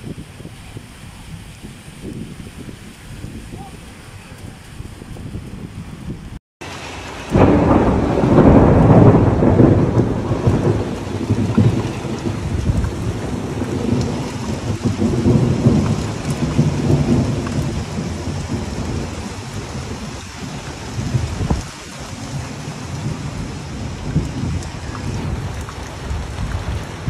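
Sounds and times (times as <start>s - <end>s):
heavy rain splashing on street: 0.0s - 27.0s.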